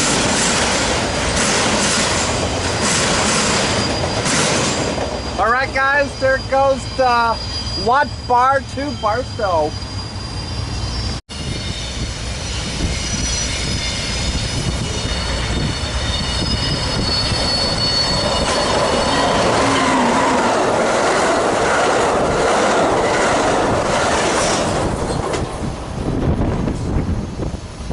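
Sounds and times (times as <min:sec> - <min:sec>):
train rushing and wheels clattering: 0:00.0 - 0:27.9
train wheels squealing: 0:01.4 - 0:20.4.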